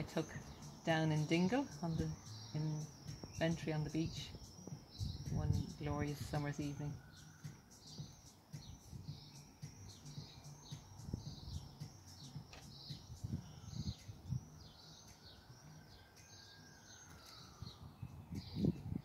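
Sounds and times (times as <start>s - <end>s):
small bird chirping: 0.0s - 19.0s.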